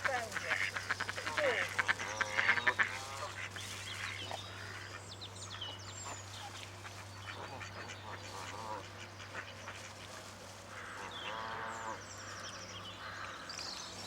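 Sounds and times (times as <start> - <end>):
ducks quacking: 0.0 - 5.1, 6.0 - 12.0.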